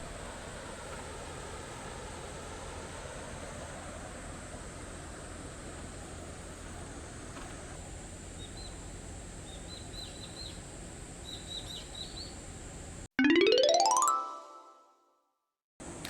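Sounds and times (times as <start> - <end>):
small birds chirping: 3.4 - 13.1
rising chime sweep: 13.2 - 14.9.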